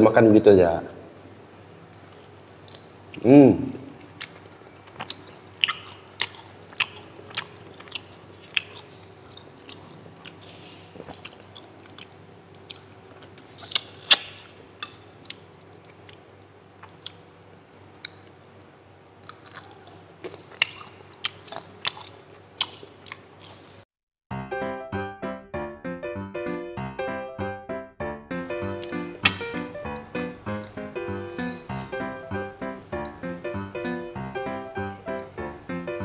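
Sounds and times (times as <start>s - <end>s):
faint steady hum: 0.0s - 23.8s, 28.3s - 36.0s
wet chewing and mouth clicks: 4.1s - 16.2s, 19.2s - 23.8s.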